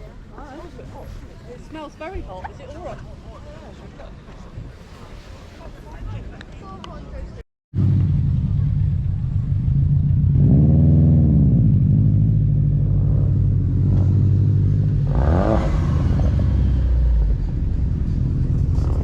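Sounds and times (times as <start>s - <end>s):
car engine idling and revving: 7.8s - 19.0s.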